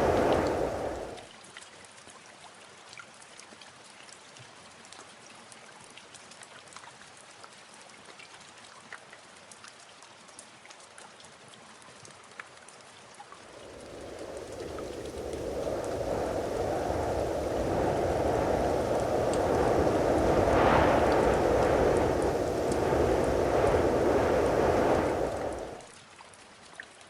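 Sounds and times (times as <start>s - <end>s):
faint steady hiss: 0.0s - 1.3s, 13.3s - 25.9s.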